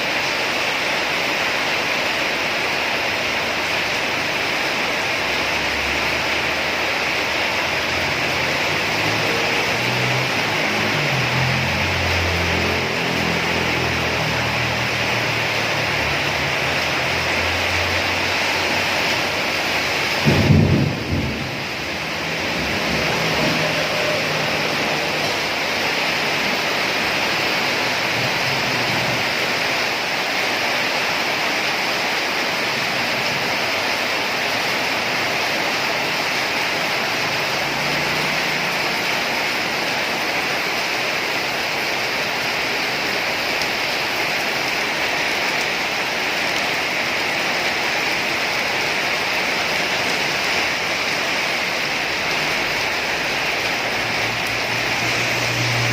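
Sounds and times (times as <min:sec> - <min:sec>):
heavy rain falling: 0:00.0 - 0:55.9
low crack of thunder: 0:20.2 - 0:23.7.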